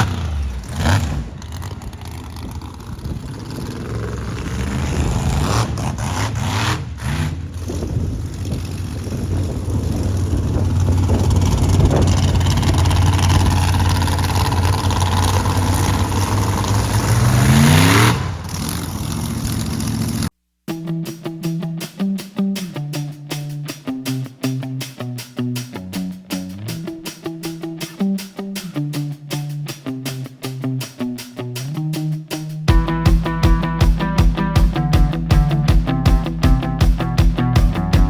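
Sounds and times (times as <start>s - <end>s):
monster truck engine revving: 0.0s - 20.3s.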